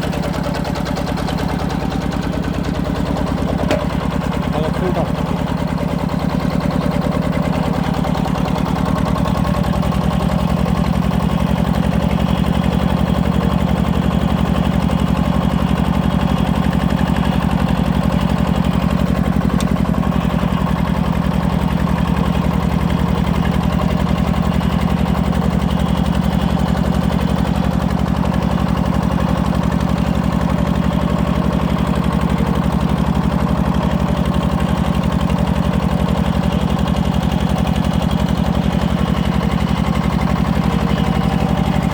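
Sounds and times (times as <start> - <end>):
diesel engine running steadily: 0.0 - 41.9.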